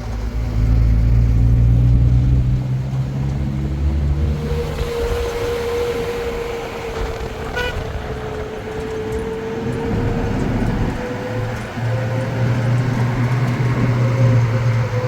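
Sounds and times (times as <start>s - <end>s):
vehicle road rumble and whine: 0.0s - 15.0s
horn beep: 7.6s - 7.8s.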